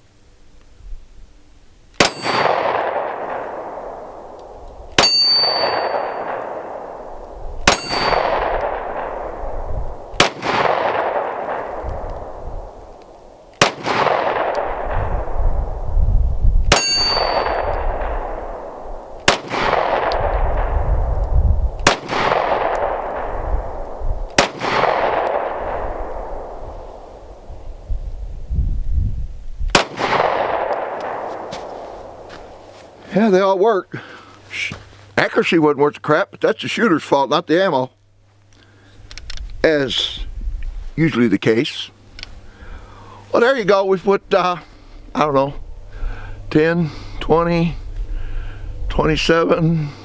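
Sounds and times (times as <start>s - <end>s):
pistol shots with ringing decay: 2.0s - 12.8s, 13.5s - 15.8s, 16.6s - 21.1s, 21.8s - 27.3s, 29.7s - 32.6s
metallic clang: 5.0s - 6.3s, 7.7s - 8.3s, 16.7s - 17.8s.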